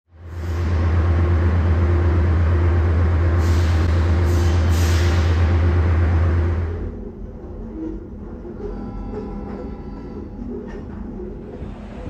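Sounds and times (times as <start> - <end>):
train rumbling: 0.1 - 12.0
air hisses: 3.4 - 5.4.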